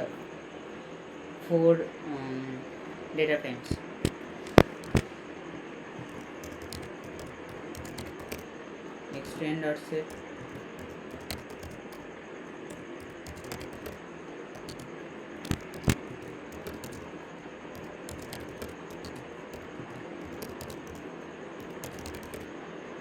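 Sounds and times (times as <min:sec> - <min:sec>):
keyboard keys clicking: 0:03.8 - 0:05.1, 0:06.0 - 0:08.5, 0:09.2 - 0:09.4, 0:10.0 - 0:12.1, 0:12.7 - 0:14.0, 0:14.6 - 0:22.5.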